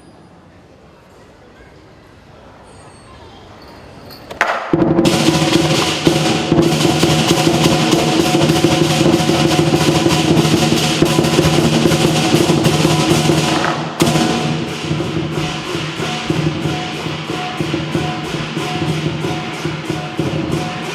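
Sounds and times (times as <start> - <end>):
cymbals clashing: 3.8 - 20.9
drum roll: 4.4 - 20.9.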